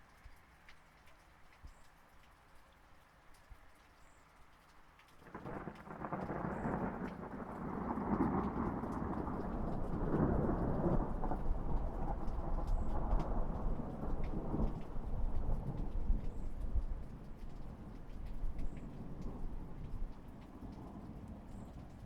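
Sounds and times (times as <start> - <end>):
light rain: 0.0 - 22.0
raindrops ticking: 0.0 - 22.0
thunder rumbling: 5.3 - 22.0.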